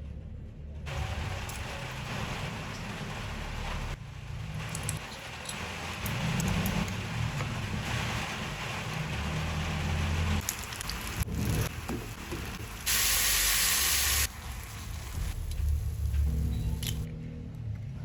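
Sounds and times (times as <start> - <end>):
food sizzling in frying pan: 5.0 - 15.4.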